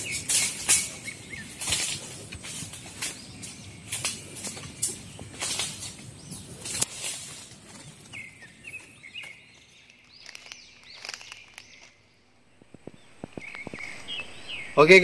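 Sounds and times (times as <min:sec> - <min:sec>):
scuffs and rustles: 0:00.0 - 0:11.9
small birds chirping: 0:00.0 - 0:15.0.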